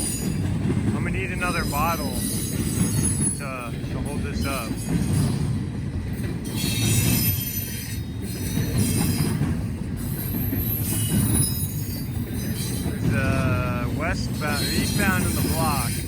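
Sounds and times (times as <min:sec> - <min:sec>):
train wheels rumbling on rails: 0:00.0 - 0:16.0
high-pitched wheel squeal: 0:10.1 - 0:12.9.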